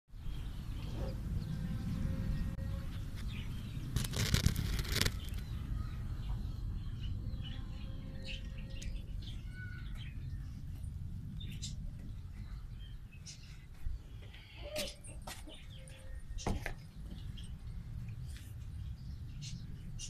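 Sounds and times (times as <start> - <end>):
small birds chirping: 0.2 - 20.0
loud rustling burst: 3.9 - 5.4.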